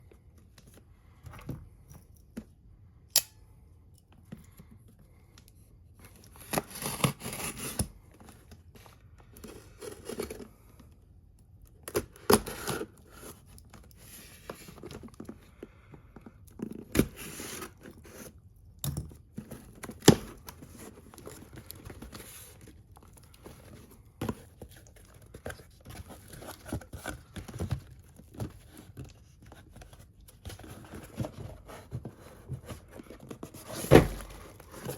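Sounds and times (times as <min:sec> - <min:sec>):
plastic and cardboard crinkling: 0:19.2 - 0:34.9.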